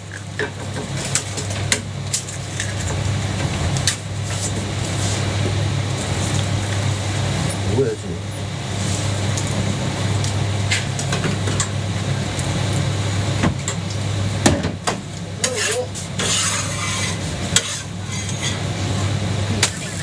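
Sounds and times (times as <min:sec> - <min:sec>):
steady low hum: 0:00.0 - 0:20.0
sizzling: 0:00.1 - 0:14.4, 0:15.0 - 0:20.0
metal spatula scraping griddle: 0:15.4 - 0:19.1.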